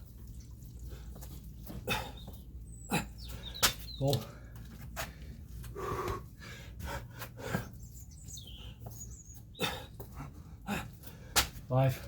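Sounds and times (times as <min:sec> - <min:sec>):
man breathing hard: 0:04.2 - 0:07.8, 0:09.6 - 0:11.6.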